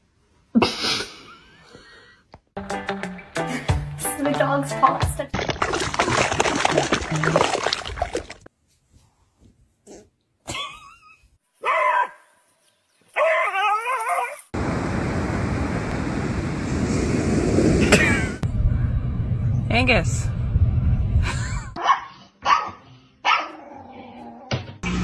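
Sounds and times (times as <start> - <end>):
dog whining and yipping: 13.2 - 14.4
steady rushing noise: 14.6 - 21.3.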